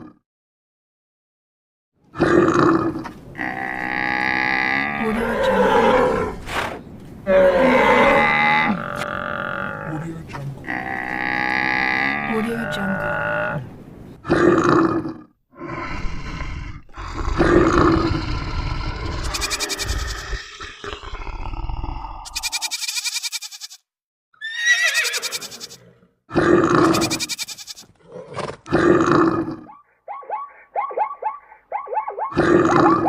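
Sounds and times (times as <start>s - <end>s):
wild animal calls: 14.2s - 23.8s, 24.4s - 33.0s.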